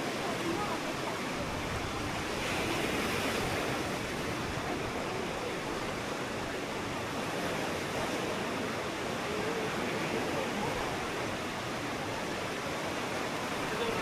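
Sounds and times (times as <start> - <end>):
ocean surf washing onto beach: 0.0 - 14.0.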